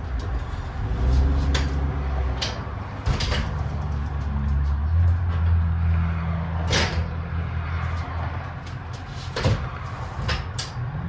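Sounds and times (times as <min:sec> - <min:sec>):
bicycle knocks and clunks: 0:00.0 - 0:05.6, 0:06.6 - 0:10.7.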